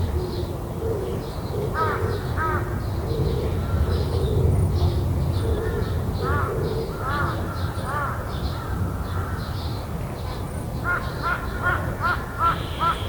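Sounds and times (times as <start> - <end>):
crow cawing: 10.9 - 13.0.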